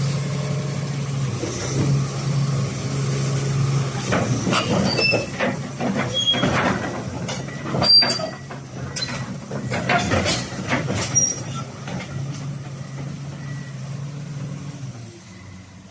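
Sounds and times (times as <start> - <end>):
excavator diesel engine running: 0.0 - 15.9
metallic clanks: 4.1 - 12.2
high-pitched steel squeals: 4.6 - 5.3, 6.1 - 6.5, 7.8 - 9.2, 11.1 - 11.7.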